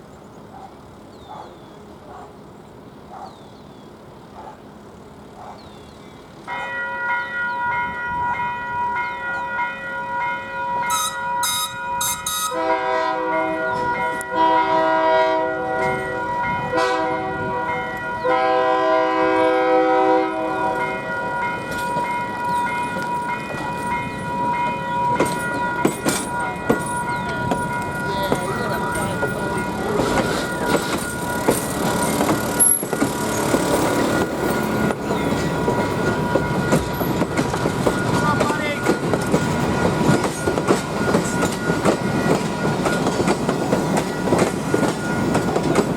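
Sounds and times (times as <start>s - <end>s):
bell ringing: 6.5s - 12.6s, 20.7s - 43.3s
locomotive horn blasts: 6.5s - 22.1s.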